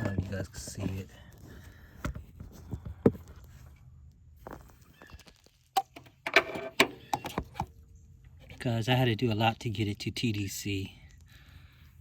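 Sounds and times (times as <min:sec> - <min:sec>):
handling clicks and knocks: 0:05.0 - 0:07.7.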